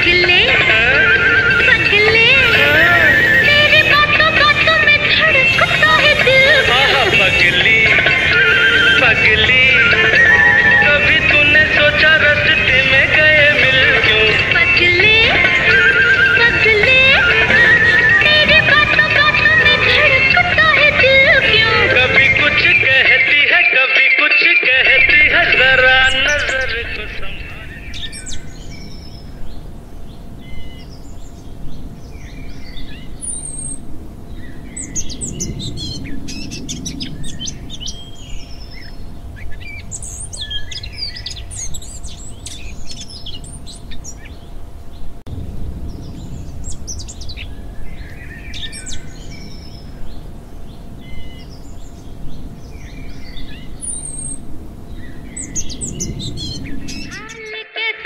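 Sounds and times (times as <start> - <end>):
birds chirping: 0.0 - 23.6, 24.7 - 57.5
low outdoor rumble: 24.8 - 57.3.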